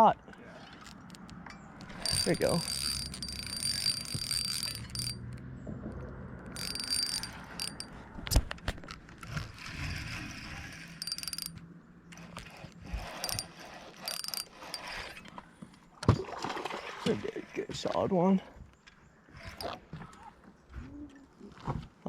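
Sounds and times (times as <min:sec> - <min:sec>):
fishing reel ratcheting: 0:00.8 - 0:05.4, 0:06.5 - 0:08.0, 0:09.3 - 0:11.6, 0:12.2 - 0:15.2, 0:19.5 - 0:19.8
reel drag high-pitched spurts: 0:01.9 - 0:05.2, 0:06.5 - 0:07.9, 0:09.6 - 0:11.6, 0:12.2 - 0:15.2.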